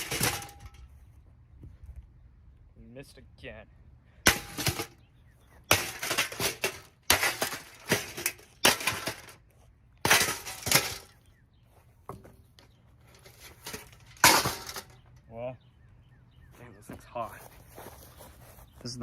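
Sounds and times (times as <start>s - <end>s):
hard blows smashing a fan: 0.0s - 0.8s, 4.3s - 5.0s, 5.7s - 9.4s, 10.0s - 11.2s, 13.2s - 15.0s
broken pieces clattering: 5.7s - 9.4s, 10.1s - 11.2s, 13.2s - 15.0s.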